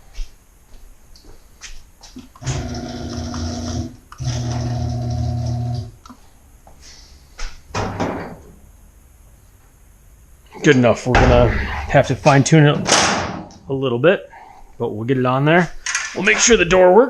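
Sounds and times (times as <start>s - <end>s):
garage door opener motor humming: 2.4s - 6.0s.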